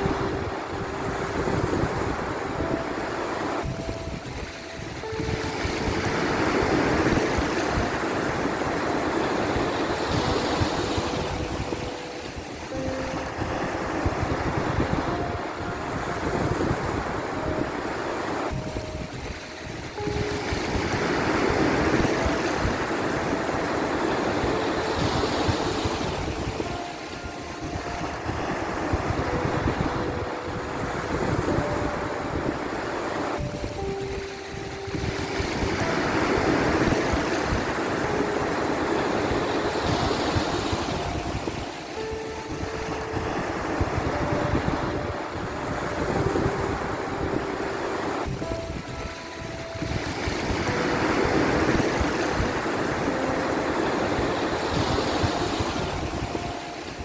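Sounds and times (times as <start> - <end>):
sea waves washing in: 0.0 - 57.0
soft background music: 0.0 - 57.0
wind buffeting microphone: 0.0 - 57.0.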